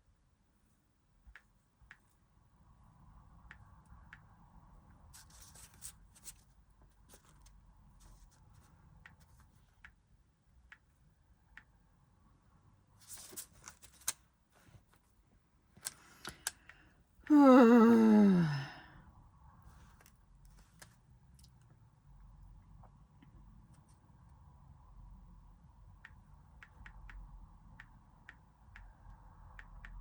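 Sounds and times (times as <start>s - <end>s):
paper and stickers rustling: 5.1s - 9.8s, 13.0s - 15.2s.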